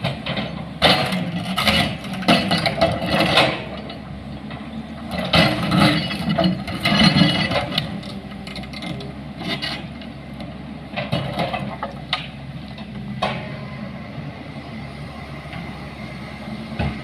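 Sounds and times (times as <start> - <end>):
metallic clanks and knocks: 0.0 - 9.9, 10.9 - 13.6
engine running: 0.0 - 17.0.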